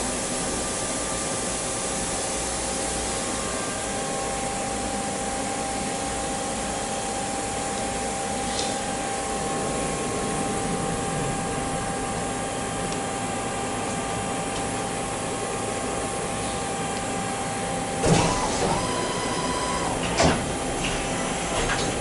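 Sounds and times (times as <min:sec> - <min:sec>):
machinery humming: 0:00.0 - 0:22.0
short whine: 0:18.0 - 0:20.0.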